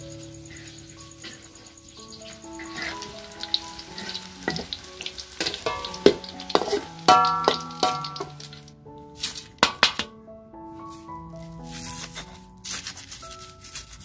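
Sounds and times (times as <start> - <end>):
food sizzling in hot oil: 1.2 - 8.7
metal spatula scraping a wok: 2.6 - 8.6
spatula knocking on wok: 2.7 - 8.6.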